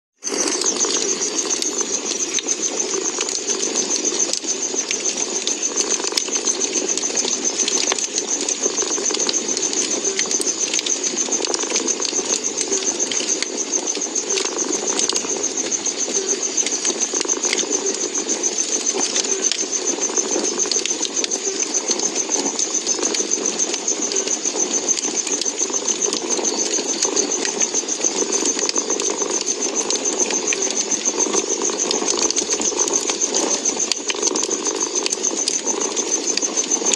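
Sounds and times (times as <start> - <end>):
wood fire crackling: 0.2 - 36.9.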